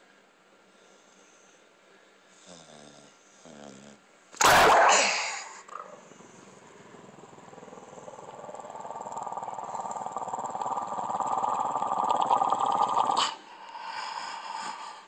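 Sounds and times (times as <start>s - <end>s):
dog growling: 2.4s - 13.4s.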